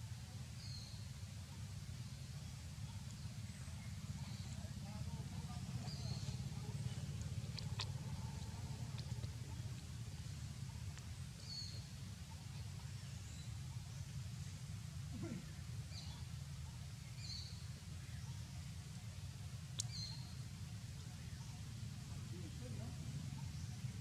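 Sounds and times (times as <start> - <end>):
steady low rumble: 1.8 - 15.9.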